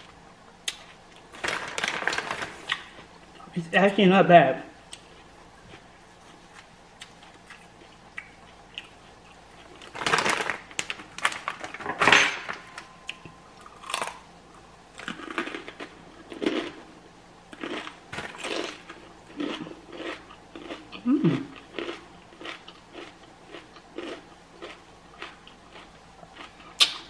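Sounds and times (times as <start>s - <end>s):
chip bag crackling: 1.3s - 2.9s, 9.7s - 12.0s, 17.6s - 20.8s
crunchy bites and chewing: 13.1s - 16.9s, 17.5s - 27.0s.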